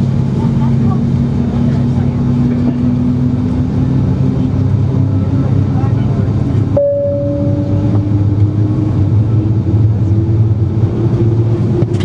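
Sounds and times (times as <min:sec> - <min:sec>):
aircraft engines rumbling and humming: 0:00.0 - 0:12.0
short steady tone: 0:06.8 - 0:08.2
faint rising whine: 0:06.8 - 0:09.2.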